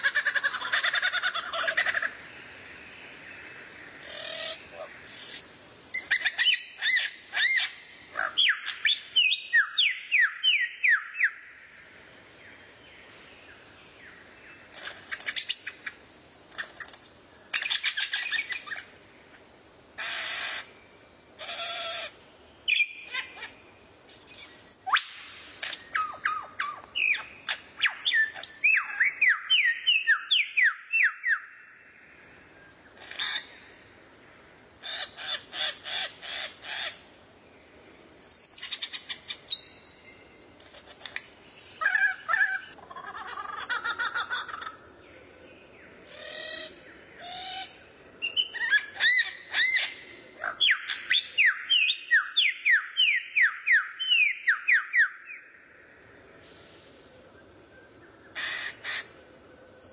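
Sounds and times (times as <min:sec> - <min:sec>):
harsh buzzy bird calls: 0:58.2 - 0:59.2.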